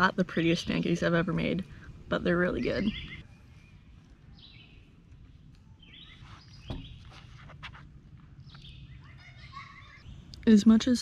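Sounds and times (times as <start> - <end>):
birds chirping and singing: 0.2 - 7.6, 8.2 - 10.5
single knock: 6.7 - 6.9.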